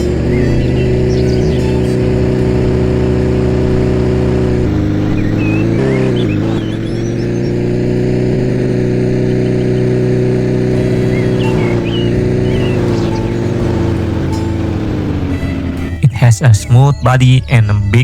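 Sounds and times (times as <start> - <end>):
faint bird chirps: 0.0 - 2.8, 5.0 - 7.9, 9.0 - 14.1
car engine running: 0.0 - 18.0.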